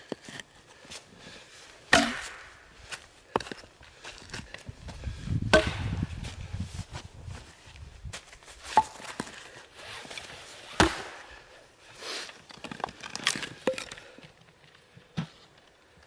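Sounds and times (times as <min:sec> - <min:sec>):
axe chopping firewood: 0:01.9 - 0:02.6, 0:05.5 - 0:06.0, 0:10.8 - 0:11.4.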